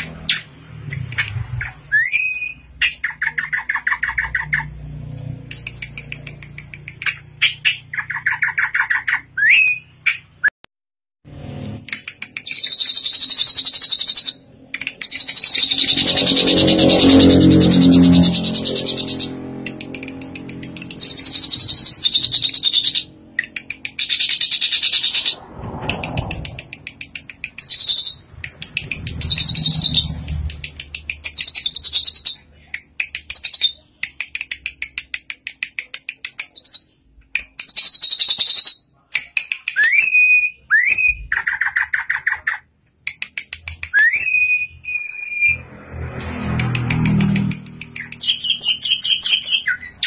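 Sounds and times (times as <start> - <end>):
bird upward-sweeping whistles: 1.6 - 4.6, 7.7 - 10.0, 12.4 - 14.4, 15.0 - 19.3, 21.0 - 23.1, 29.2 - 30.1, 39.8 - 42.1, 43.9 - 45.6, 48.2 - 50.0.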